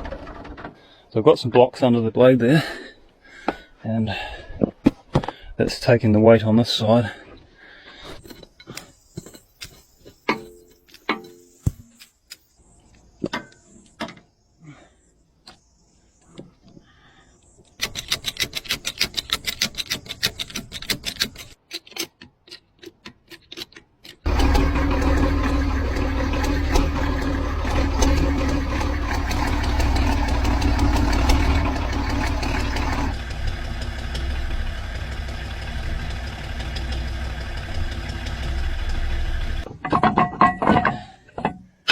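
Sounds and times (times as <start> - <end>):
bulldozer engine cranking: 0.0 - 1.0, 23.4 - 40.4
engine running with deep rumble: 24.3 - 39.7.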